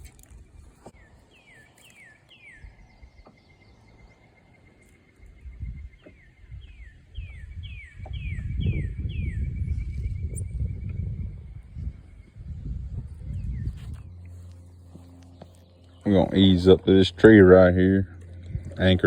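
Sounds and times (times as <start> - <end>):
wind buffeting microphone: 5.2 - 15.2, 16.0 - 19.0.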